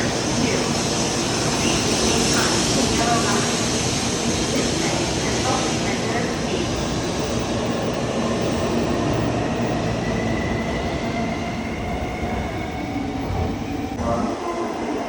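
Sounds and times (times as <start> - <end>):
thin high whine: 4.8 - 11.4.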